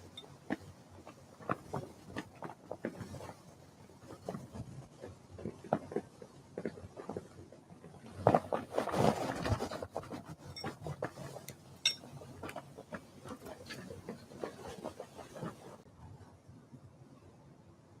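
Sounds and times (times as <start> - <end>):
rustling flurry: 8.2 - 15.8.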